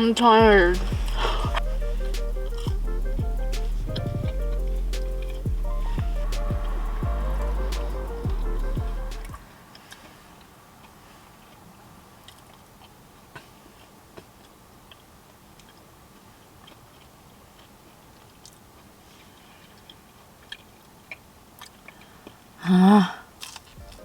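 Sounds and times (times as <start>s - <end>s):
music with heavy bass: 0.4s - 9.4s, 23.8s - 24.0s
chewing with mouth closed: 10.8s - 22.5s.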